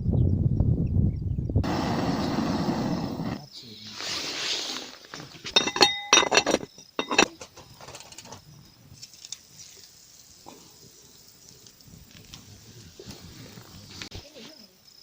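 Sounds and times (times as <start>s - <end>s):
metal objects clinking: 5.1s - 8.4s
faint ticks and rustles: 7.5s - 15.0s.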